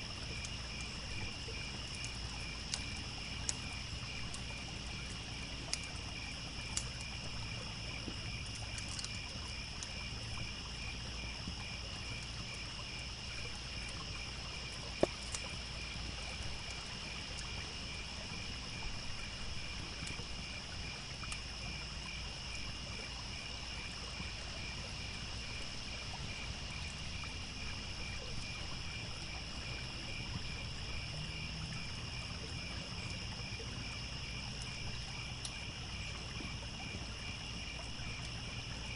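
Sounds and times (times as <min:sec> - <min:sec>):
crickets chirping: 0:00.0 - 0:38.9
trickling stream: 0:00.0 - 0:38.9
campfire crackling pops: 0:00.3 - 0:10.5, 0:13.3 - 0:17.6.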